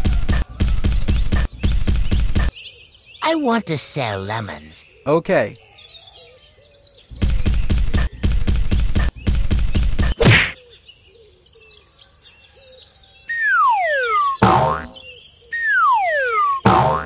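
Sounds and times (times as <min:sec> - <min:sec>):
faint bird chirps: 0:10.6 - 0:17.0.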